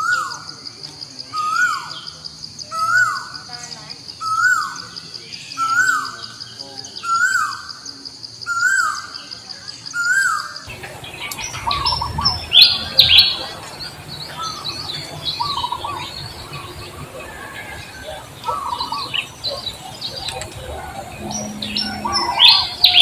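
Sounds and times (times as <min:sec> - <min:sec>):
birds chirping and twittering: 0:00.0 - 0:23.0
repeated bird call: 0:00.0 - 0:23.0
high insect whine: 0:10.7 - 0:23.0
low rumble: 0:10.7 - 0:23.0.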